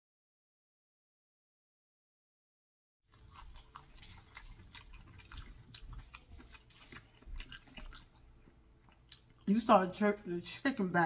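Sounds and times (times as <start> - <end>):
person chewing crispy chicken: 3.1 - 9.5.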